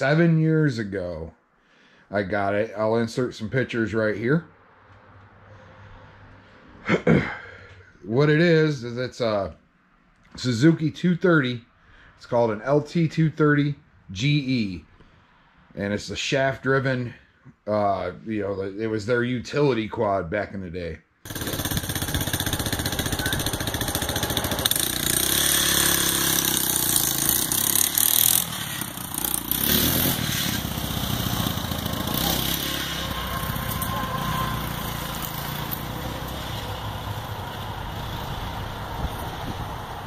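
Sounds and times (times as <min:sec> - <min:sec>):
quad bike engine revving: 0:21.3 - 0:40.0.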